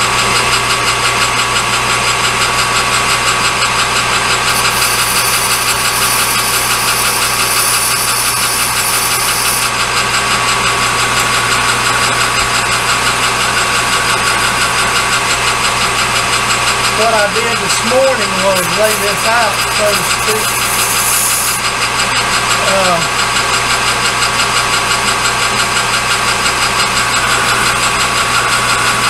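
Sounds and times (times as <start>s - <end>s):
machine motor humming and whining: 0.0s - 29.0s
hiss of metal cutting: 4.5s - 9.7s.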